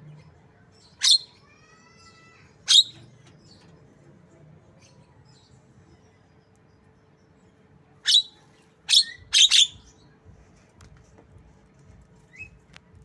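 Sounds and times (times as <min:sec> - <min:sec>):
faint bird chirps: 0:04.8 - 0:10.2.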